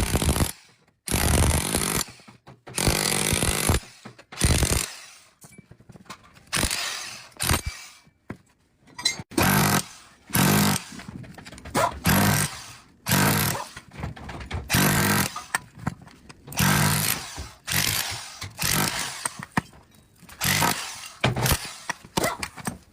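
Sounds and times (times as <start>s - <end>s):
power tool bursts: 0.0s - 5.3s, 12.1s - 13.6s, 16.6s - 19.4s, 20.4s - 21.9s.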